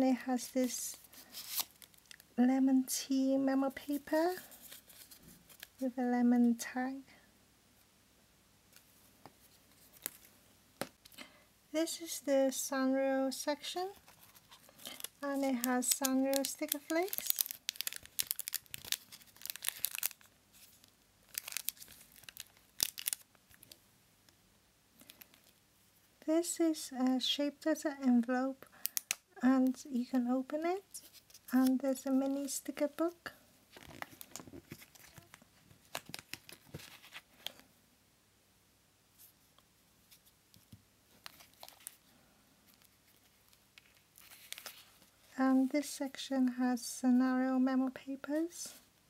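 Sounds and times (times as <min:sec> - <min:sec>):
paper and cardboard rustling: 0:03.8 - 0:05.8, 0:13.9 - 0:23.2, 0:33.7 - 0:37.6, 0:42.7 - 0:45.3.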